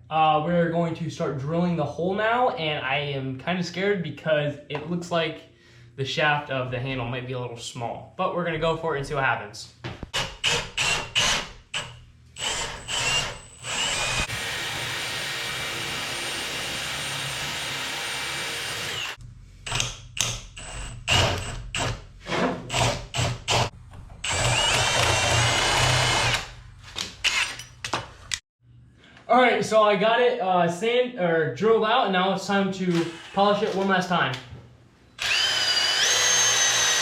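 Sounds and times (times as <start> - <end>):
power drill boring into wood: 10.2 - 19.8, 22.7 - 26.5, 32.9 - 33.6, 35.2 - 37.0.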